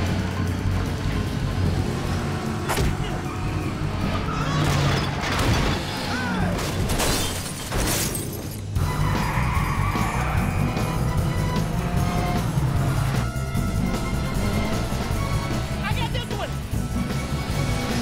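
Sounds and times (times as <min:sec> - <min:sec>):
car engines: 0:00.0 - 0:18.0
tyres skidding: 0:00.0 - 0:18.0
car crash: 0:04.2 - 0:10.2
action music: 0:08.5 - 0:18.0.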